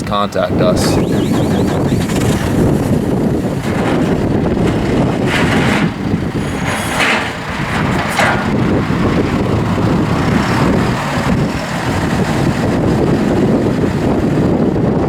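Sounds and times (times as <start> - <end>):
tractor diesel engine running: 0.0 - 15.0
high-pitched rushing noise: 0.6 - 3.1.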